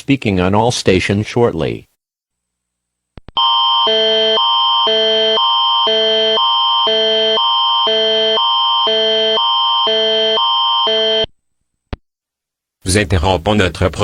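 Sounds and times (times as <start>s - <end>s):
electronic alarm alternating chords: 3.4s - 11.3s
steady high tone: 3.4s - 11.3s.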